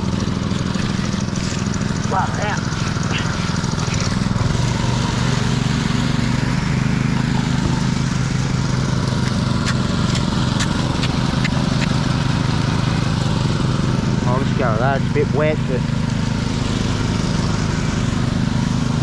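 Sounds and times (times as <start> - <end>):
engine running steadily: 0.0 - 19.0
sharp clicks: 9.2 - 12.0.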